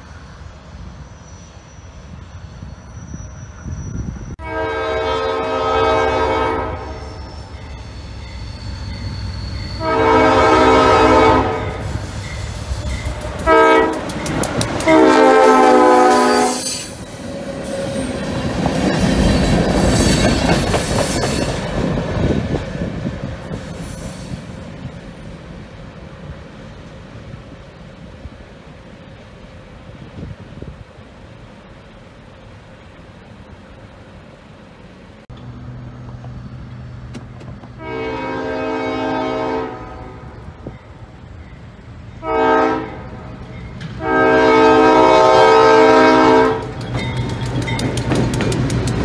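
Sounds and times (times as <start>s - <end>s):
thin high wheel squeal: 0.8s - 4.4s, 6.9s - 9.9s, 16.1s - 21.7s
locomotive horn blasts: 4.4s - 7.3s, 9.6s - 12.0s, 13.4s - 14.1s, 14.8s - 16.8s, 37.8s - 40.6s, 42.2s - 43.3s, 44.0s - 46.8s
wheels clattering over rail joints: 12.3s - 15.1s, 46.6s - 49.0s.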